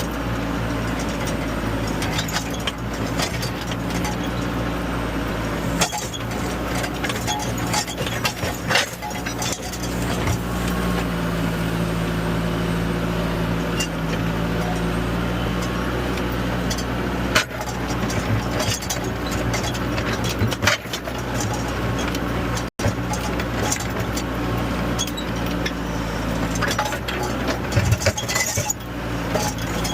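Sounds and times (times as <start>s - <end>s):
diesel engine running: 0.0s - 29.9s
clicks and knocks from debris: 0.8s - 4.4s, 5.7s - 10.8s, 16.7s - 24.3s, 26.4s - 29.9s.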